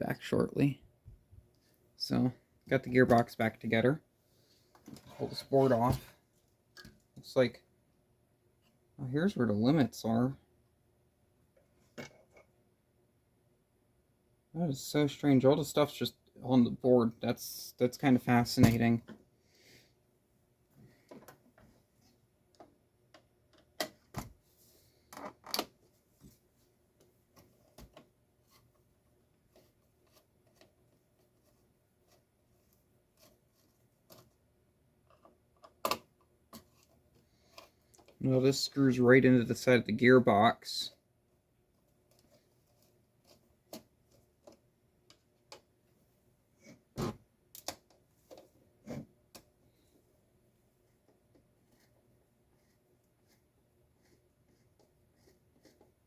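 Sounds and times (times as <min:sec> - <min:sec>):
small clicks and knocks of parts: 0:25.1 - 0:25.8, 0:35.0 - 0:38.2, 0:42.0 - 0:45.8, 0:47.5 - 0:48.5, 0:49.3 - 0:49.6.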